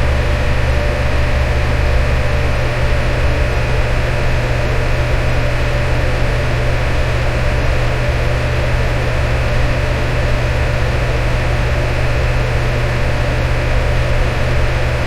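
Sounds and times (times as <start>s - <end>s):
deep motor hum: 0.0s - 11.4s
electric fan running: 0.0s - 15.0s.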